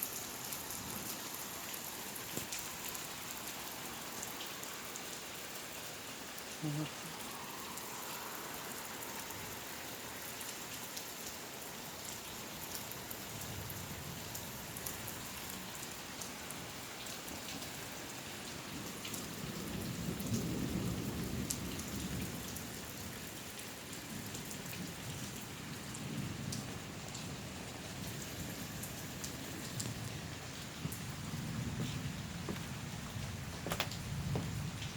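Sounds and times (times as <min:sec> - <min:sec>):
heavy rain falling: 0:00.0 - 0:34.9
low thunder rumble: 0:24.8 - 0:34.9.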